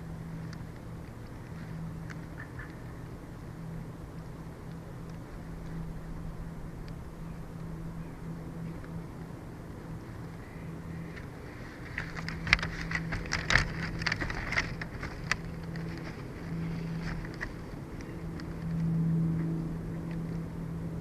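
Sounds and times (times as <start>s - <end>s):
wind low hum: 0.0s - 21.0s
sharp crackling clicks: 0.2s - 3.2s, 4.1s - 5.9s, 11.0s - 20.5s.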